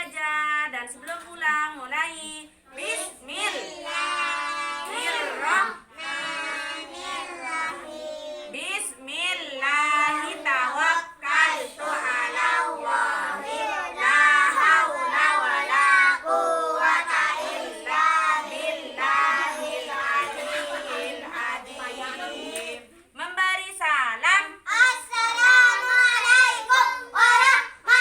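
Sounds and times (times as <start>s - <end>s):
children singing in unison: 3.4s - 8.5s, 10.0s - 22.8s, 24.7s - 28.0s.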